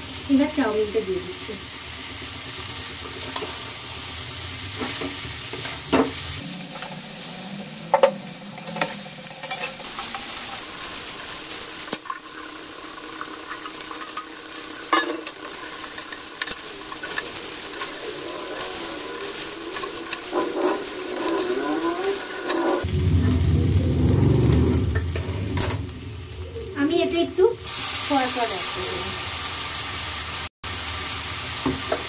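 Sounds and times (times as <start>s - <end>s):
noodles sizzling in a pan: 0.0s - 32.0s
spatula scraping and knocking pan: 13.2s - 22.8s.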